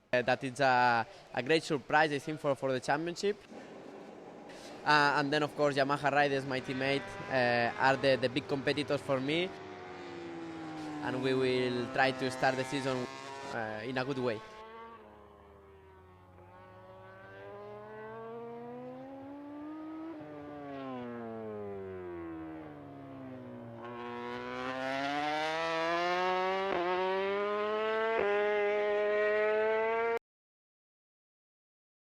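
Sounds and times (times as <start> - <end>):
racing motorcycle engine revving: 5.4 - 30.2.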